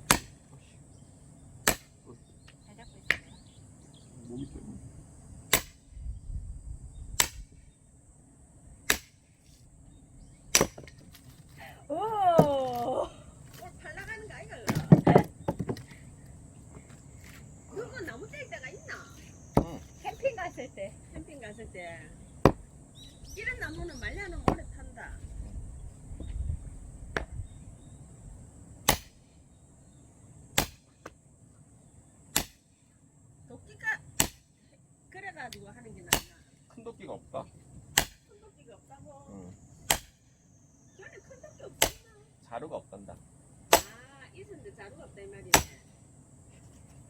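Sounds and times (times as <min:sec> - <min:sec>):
axe chopping firewood: 0:00.0 - 0:00.5, 0:01.6 - 0:02.0, 0:05.5 - 0:05.9, 0:07.2 - 0:07.6, 0:08.9 - 0:09.2, 0:10.5 - 0:11.6, 0:14.6 - 0:15.9, 0:19.5 - 0:20.0, 0:22.4 - 0:22.7, 0:28.8 - 0:29.2, 0:30.5 - 0:31.2, 0:32.3 - 0:32.6, 0:34.2 - 0:34.5, 0:36.1 - 0:36.4, 0:38.0 - 0:38.3, 0:39.9 - 0:40.2, 0:41.8 - 0:42.0, 0:43.7 - 0:44.0, 0:45.5 - 0:45.8.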